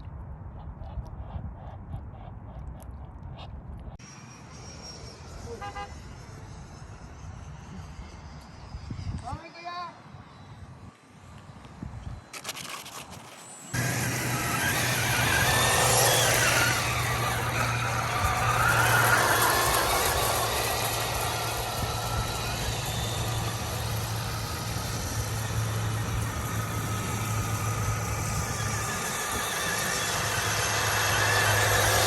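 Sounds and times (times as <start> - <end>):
high wavering whine: 4.0 - 32.0
motor humming: 11.2 - 32.0.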